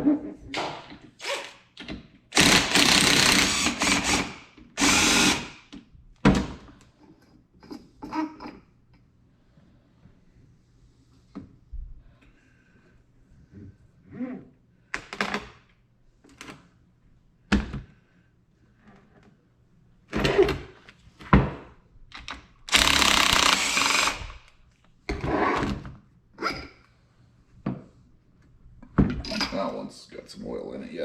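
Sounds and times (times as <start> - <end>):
loud steady tool burst: 2.3 - 5.6, 22.7 - 24.4.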